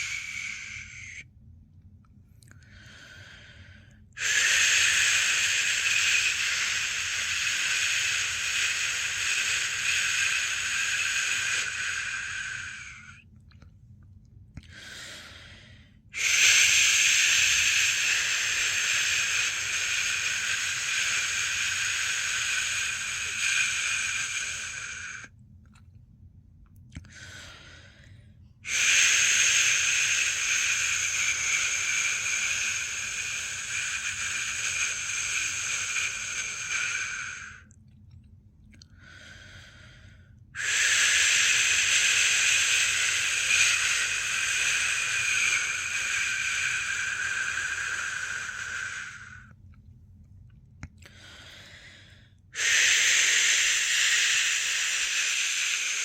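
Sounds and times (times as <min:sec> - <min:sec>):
person shushing: 0:00.0 - 0:01.2, 0:04.2 - 0:13.2, 0:16.2 - 0:25.3, 0:28.6 - 0:37.7, 0:40.6 - 0:49.5, 0:52.6 - 0:56.0.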